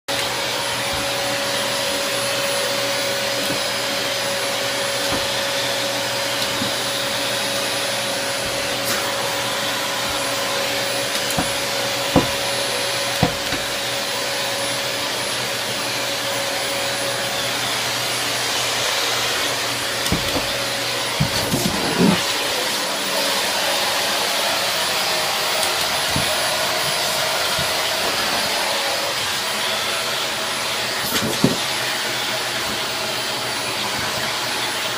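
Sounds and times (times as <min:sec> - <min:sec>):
vacuum cleaner running: 0:00.1 - 0:34.9.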